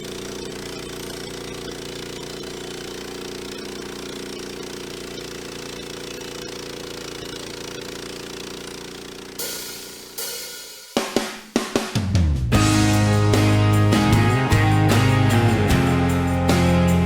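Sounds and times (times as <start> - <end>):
sawmill engine running: 0.0 - 10.3, 12.6 - 17.0
cymbal crash: 9.4 - 11.5
drum music: 9.4 - 17.0.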